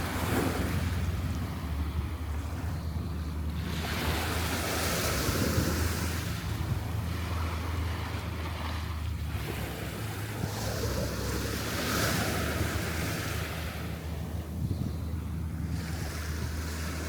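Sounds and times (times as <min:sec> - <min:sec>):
surf washing onto beach: 0:00.0 - 0:02.3
wind rumbling on microphone: 0:00.0 - 0:17.0.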